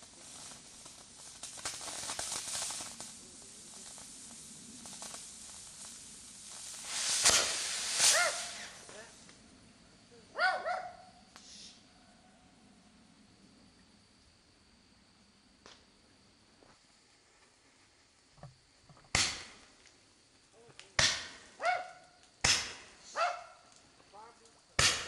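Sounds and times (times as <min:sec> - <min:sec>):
fireworks bangs: 0:00.0 - 0:09.4, 0:19.1 - 0:19.8, 0:20.7 - 0:23.5, 0:24.8 - 0:25.0
fireworks hissing and crackling: 0:00.0 - 0:12.0, 0:15.2 - 0:25.0.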